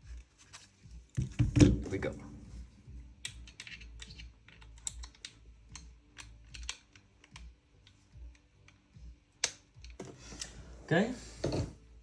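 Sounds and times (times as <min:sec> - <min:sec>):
clicks of gun parts handled: 0:03.2 - 0:08.8.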